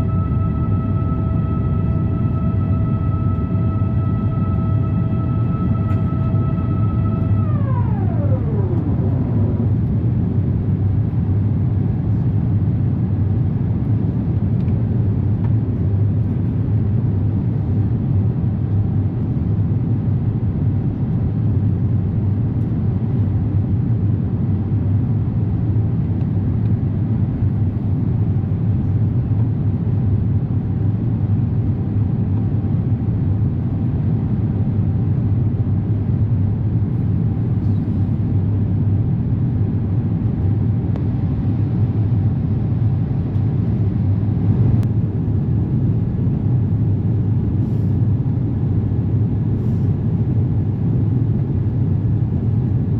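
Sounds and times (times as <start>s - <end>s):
whining tone sliding down: 0.0s - 11.2s
jet engines roaring: 0.0s - 13.4s.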